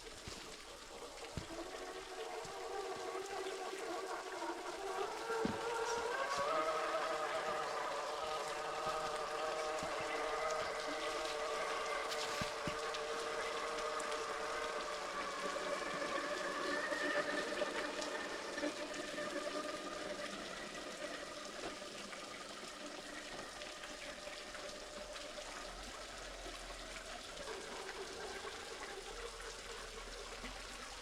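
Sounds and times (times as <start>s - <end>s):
small waterfall rushing: 0.0s - 31.0s
electric motor and gears whining: 1.4s - 21.1s.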